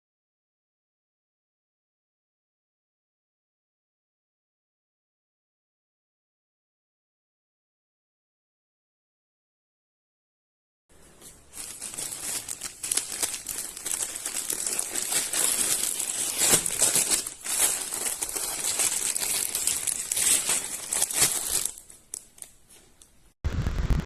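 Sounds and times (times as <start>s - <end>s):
thin plastic crinkling: 10.9s - 23.2s.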